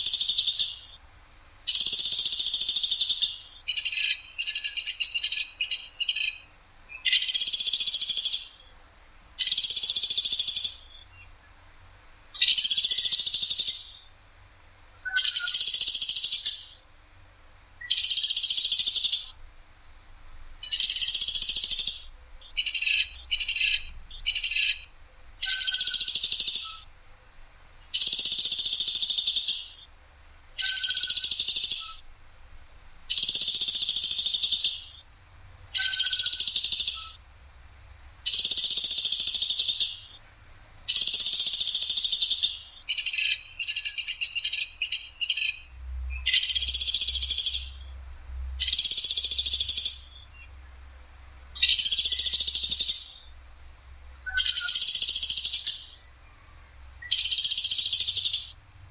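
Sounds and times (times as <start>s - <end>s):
woodpecker rattling calls: 0.0s - 1.0s, 1.7s - 8.8s, 9.4s - 11.2s, 12.4s - 14.1s, 15.0s - 16.9s, 17.8s - 19.4s, 20.6s - 26.9s, 27.6s - 29.9s, 30.6s - 32.2s, 32.8s - 35.1s, 35.7s - 37.3s, 38.0s - 48.0s, 48.6s - 50.5s, 51.6s - 53.4s, 54.2s - 56.1s, 57.0s - 58.6s.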